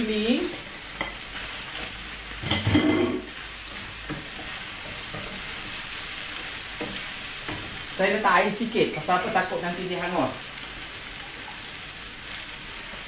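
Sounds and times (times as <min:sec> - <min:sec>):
food sizzling in a frying pan: 0:00.0 - 0:13.0
spatula stirring and clattering: 0:00.5 - 0:08.0.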